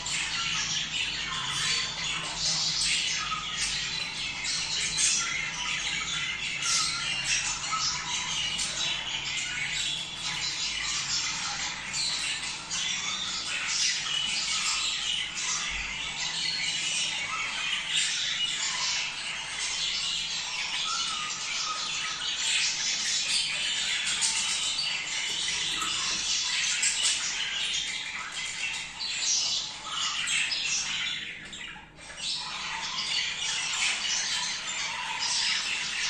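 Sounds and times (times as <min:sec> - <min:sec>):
budgerigars chattering and squawking: 0:00.0 - 0:36.0.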